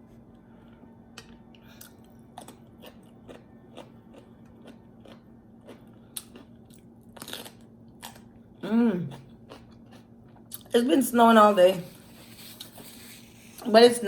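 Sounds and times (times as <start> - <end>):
person chewing fried food: 1.7 - 8.4, 9.1 - 10.7.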